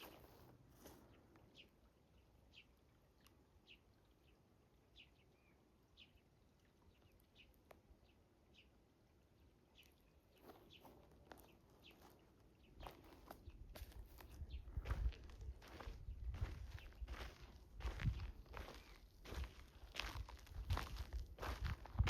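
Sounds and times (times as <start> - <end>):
footsteps on gravel: 0.0 - 1.0, 10.4 - 22.0.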